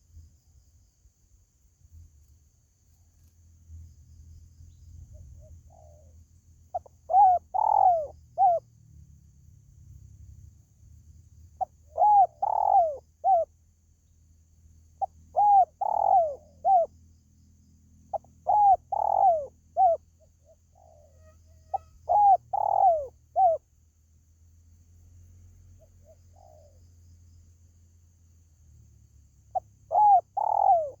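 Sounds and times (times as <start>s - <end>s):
dove cooing: 5.2s - 8.6s, 11.6s - 13.5s, 15.0s - 16.9s, 18.1s - 23.6s, 26.0s - 26.8s, 29.5s - 31.0s.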